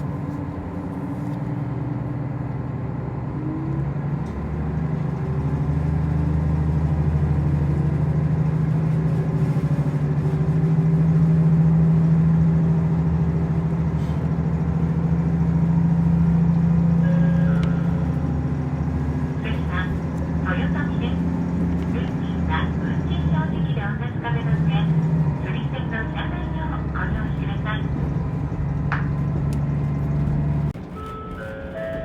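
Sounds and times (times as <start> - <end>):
diesel railcar engine running: 0.0 - 32.0.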